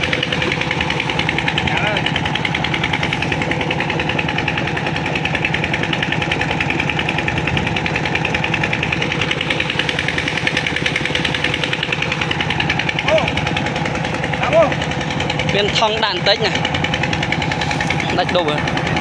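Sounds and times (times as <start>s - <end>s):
old tractor engine knocking: 0.0s - 19.0s.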